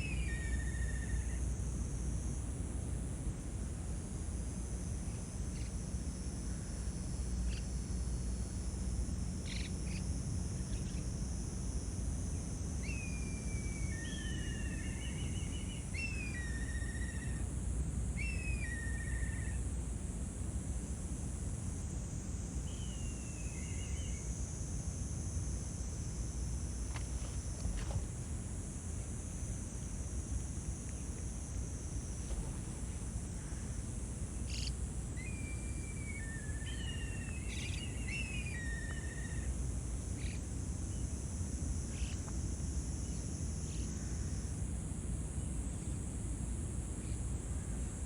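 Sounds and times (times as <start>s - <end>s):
faint ticks: 26.8s - 28.4s.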